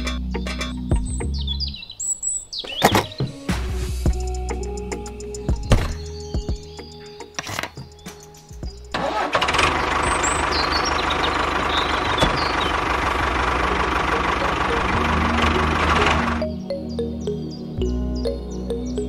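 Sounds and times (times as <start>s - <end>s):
engine-like running sound: 8.8s - 16.6s.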